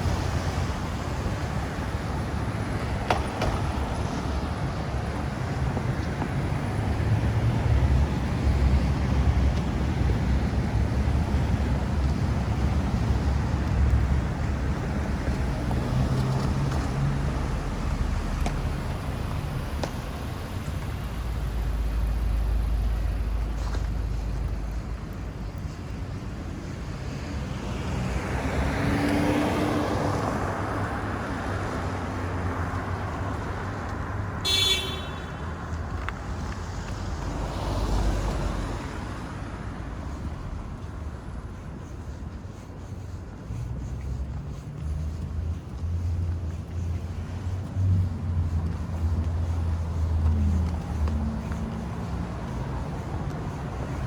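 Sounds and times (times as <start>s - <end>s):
cars passing by: 0.0s - 54.0s
low traffic rumble: 0.0s - 54.0s.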